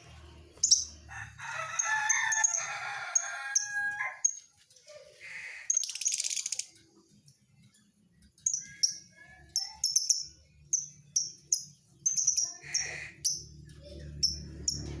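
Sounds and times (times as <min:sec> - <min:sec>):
lovebird chirping: 0:00.6 - 0:01.0, 0:08.4 - 0:13.5.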